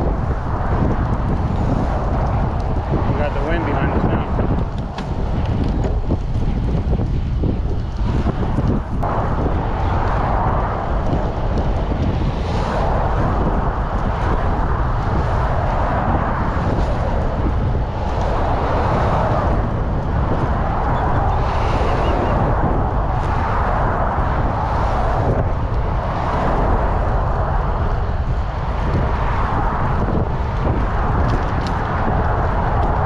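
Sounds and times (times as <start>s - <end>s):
road traffic passing: 0.0s - 33.0s
wind rumbling on microphone: 0.0s - 33.0s.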